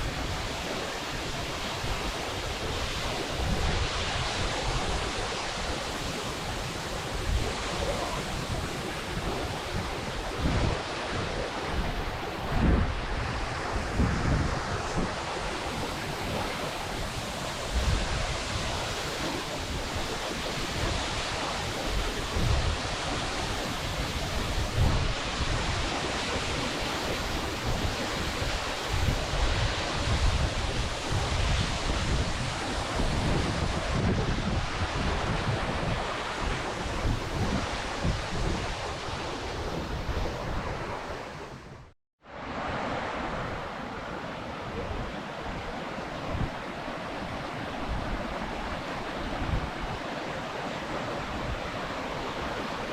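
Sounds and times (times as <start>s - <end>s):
waterfall rushing: 0.0s - 34.0s
wind buffeting microphone: 0.0s - 41.9s, 42.5s - 52.9s.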